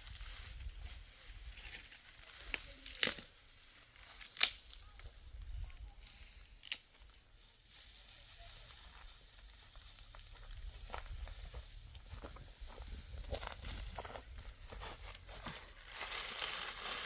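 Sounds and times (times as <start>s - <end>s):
dry wheat stalks crackling: 0.0s - 17.0s
stalks snapping: 1.8s - 3.3s, 4.0s - 4.8s, 6.0s - 6.9s.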